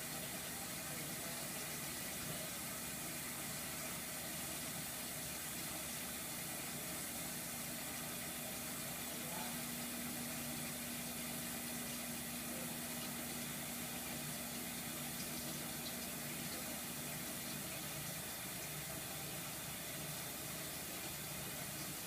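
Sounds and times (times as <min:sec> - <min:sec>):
dishwasher water rushing: 0:00.0 - 0:22.0.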